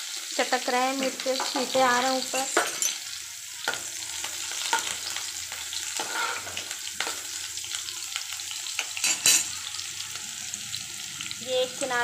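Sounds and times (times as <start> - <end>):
garlic sizzling in hot oil: 0.0 - 12.0
spoon stirring and scraping pan: 1.0 - 7.8.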